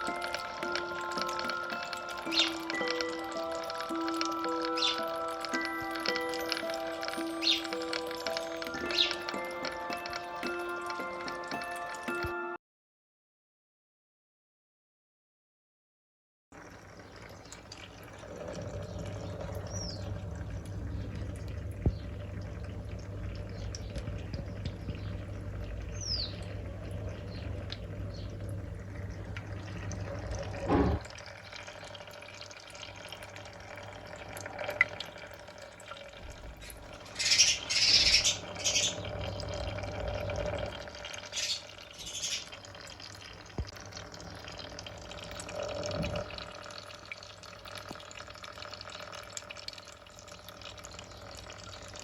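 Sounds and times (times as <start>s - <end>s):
water trickling and dripping: 0.0s - 12.4s, 16.6s - 52.0s
low steady hum: 17.7s - 52.0s.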